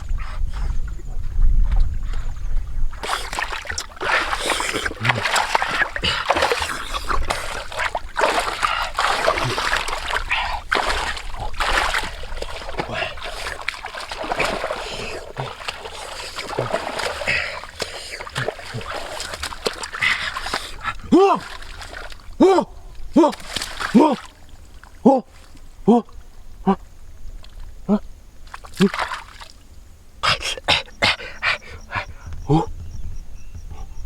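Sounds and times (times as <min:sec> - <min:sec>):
water splashing in stream: 0:02.9 - 0:26.2, 0:28.4 - 0:29.8.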